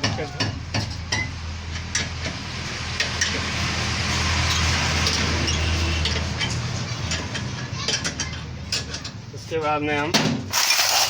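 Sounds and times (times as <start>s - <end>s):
road vehicle passing: 0.6s - 9.3s.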